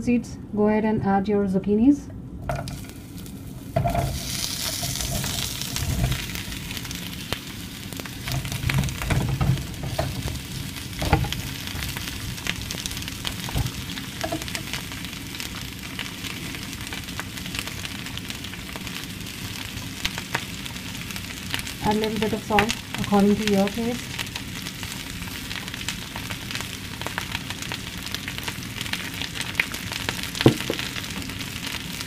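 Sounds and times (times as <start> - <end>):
vegetables sizzling in hot oil: 2.6 - 32.0
wooden spatula knocking and scraping: 30.5 - 30.9.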